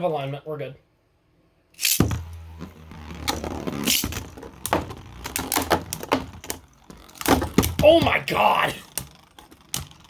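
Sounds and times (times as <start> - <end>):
spinning tops clashing: 1.8 - 2.3, 3.7 - 7.7
spinning tops launching zip: 1.8 - 10.0
spinning tops whirring: 1.8 - 10.0.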